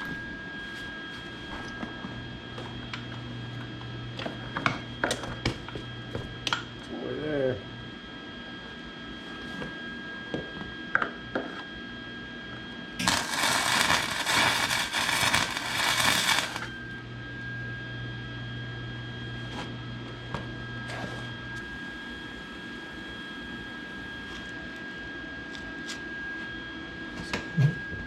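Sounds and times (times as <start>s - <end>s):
arc welder crackling: 13.0s - 17.0s
low hum: 13.0s - 23.0s.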